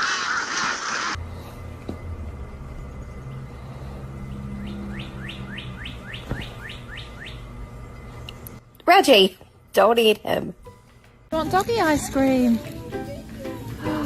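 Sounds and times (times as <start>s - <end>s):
steady low hum: 1.2s - 14.0s
bird chirping: 4.3s - 7.6s.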